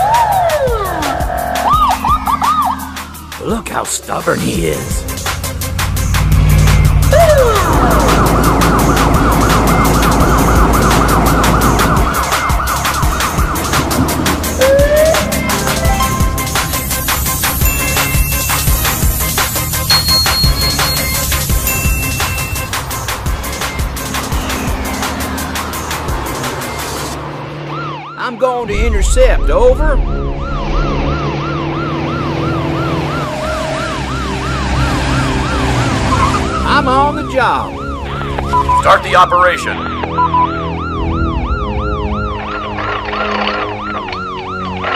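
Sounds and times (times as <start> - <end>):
police siren yelping: 0.0 - 3.8, 4.5 - 28.8, 29.7 - 44.9
steady low drone: 0.0 - 28.0, 28.6 - 38.8, 39.8 - 44.9
low rumble: 28.6 - 33.3, 40.2 - 43.6.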